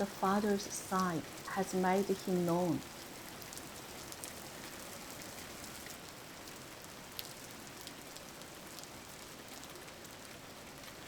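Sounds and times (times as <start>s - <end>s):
raindrop ticks: 0.0s - 6.6s, 7.2s - 8.9s
steady rain hiss: 0.0s - 11.0s.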